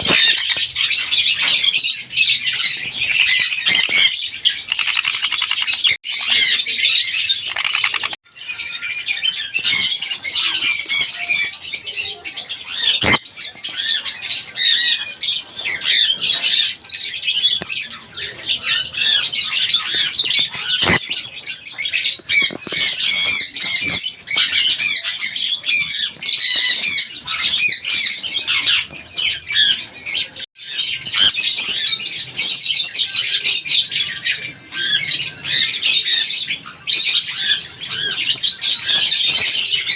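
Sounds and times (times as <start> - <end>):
sharp clicks: 4.7 - 6.0, 7.5 - 8.2.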